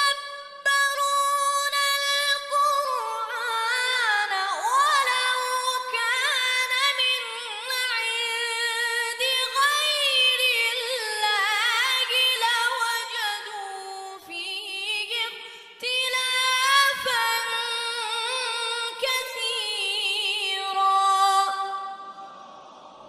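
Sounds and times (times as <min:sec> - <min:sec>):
choir singing unaccompanied: 0:22.0 - 0:23.0.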